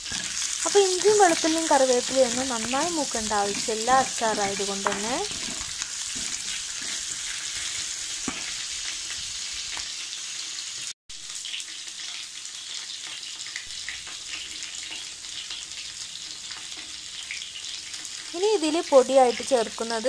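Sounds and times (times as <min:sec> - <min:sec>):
wooden spatula scraping pan: 0:00.0 - 0:08.6
spices sizzling in hot oil: 0:00.0 - 0:20.0.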